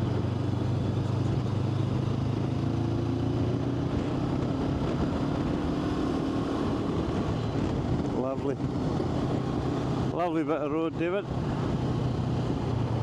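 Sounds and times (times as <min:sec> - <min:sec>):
high steady engine note: 0:00.0 - 0:13.0
road and wind noise: 0:00.0 - 0:13.0.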